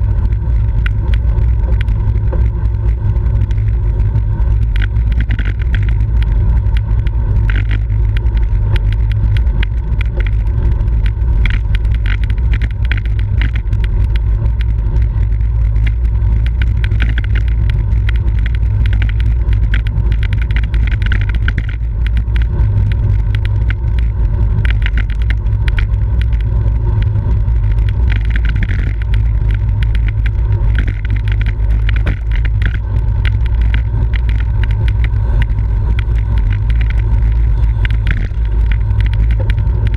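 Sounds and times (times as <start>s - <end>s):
bicycle clicks and rattles: 0.0s - 39.9s.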